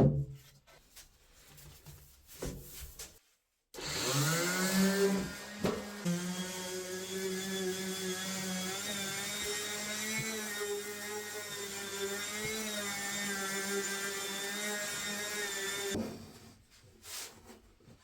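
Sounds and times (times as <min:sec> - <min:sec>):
router spindle whine cutting wood: 0:03.8 - 0:16.0.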